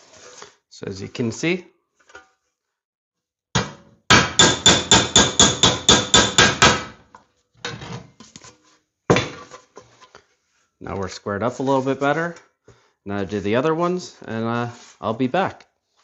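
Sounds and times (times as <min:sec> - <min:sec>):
hammer ringing on sheet steel: 0:04.1 - 0:06.9.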